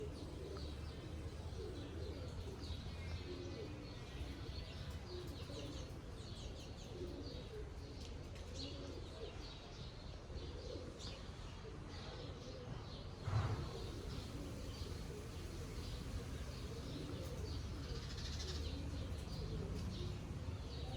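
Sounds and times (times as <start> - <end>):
dove cooing: 0.0 - 6.0, 6.6 - 7.8, 13.4 - 20.9
small birds chirping: 0.0 - 8.0, 13.4 - 20.9.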